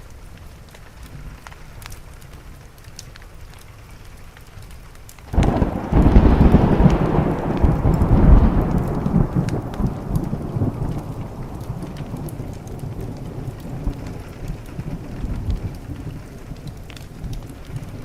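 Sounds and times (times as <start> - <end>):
steady rain: 0.0 - 18.0
thunderclap and deep rumble: 5.3 - 18.0.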